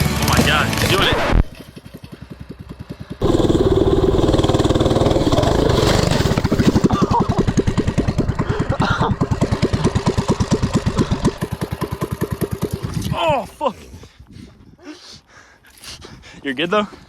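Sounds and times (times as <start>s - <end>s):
small engine chugging uphill: 0.0s - 13.4s.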